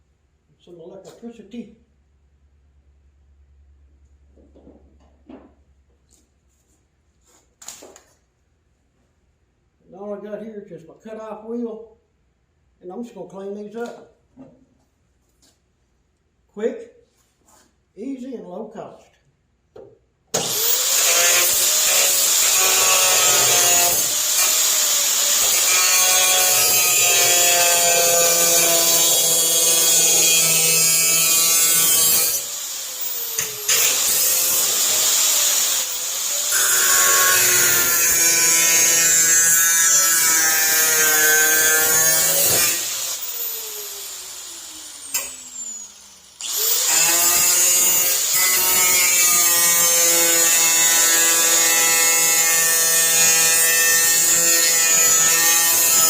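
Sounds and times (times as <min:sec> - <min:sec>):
cut-off wheel cutting steel: 0:20.4 - 0:56.0.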